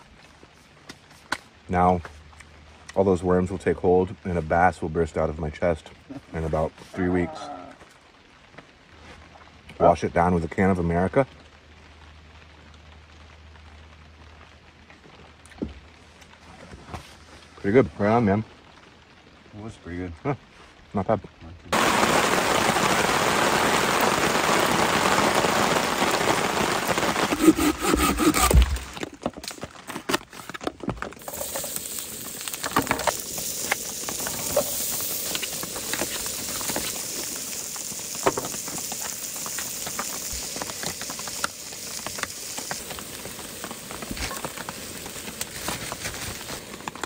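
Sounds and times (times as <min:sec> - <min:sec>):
low steady background hiss: 0:00.0 - 0:26.8
heavy rain: 0:01.5 - 0:47.0.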